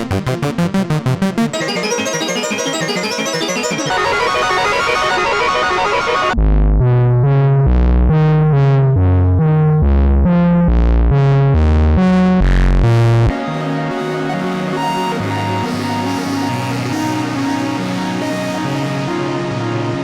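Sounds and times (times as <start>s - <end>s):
synthesizer bass line: 1.6s - 15.6s.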